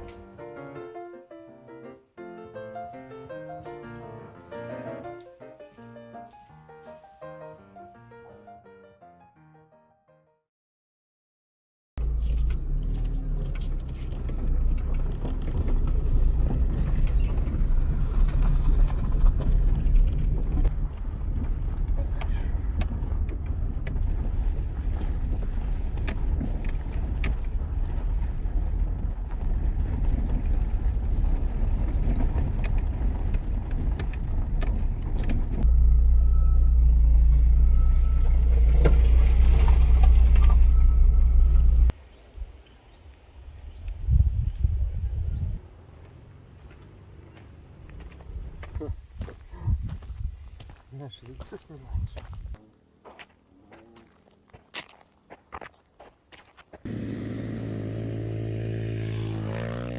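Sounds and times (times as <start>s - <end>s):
low rumble: 13.4s - 42.0s.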